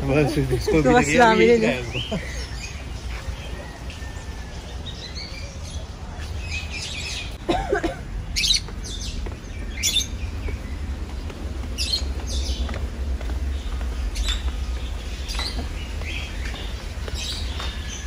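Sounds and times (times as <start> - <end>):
birds chirping and squawking: 0.0 - 18.0
low rumble: 8.0 - 18.0.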